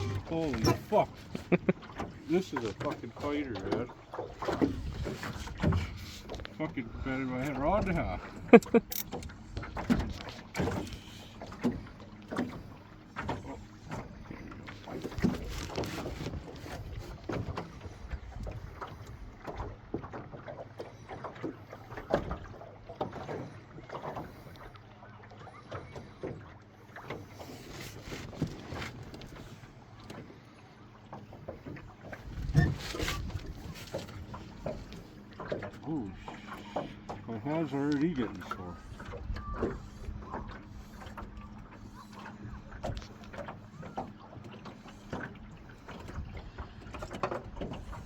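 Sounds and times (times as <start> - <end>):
water splashing: 0.0 - 48.0
wind: 0.0 - 48.0
knocks and clicks of fishing gear: 0.1 - 6.6, 7.4 - 12.6, 13.2 - 17.7, 31.1 - 37.2.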